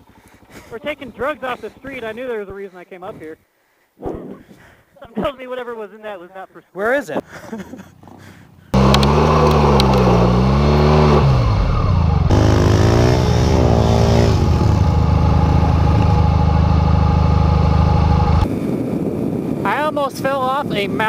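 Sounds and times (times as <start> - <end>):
motorcycle engine revving: 8.0 - 18.5.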